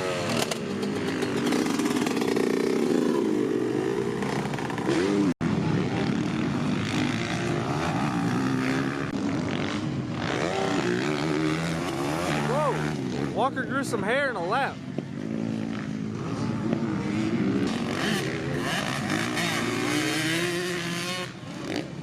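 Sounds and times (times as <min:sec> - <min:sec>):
dirt bike engines revving: 0:00.0 - 0:22.0.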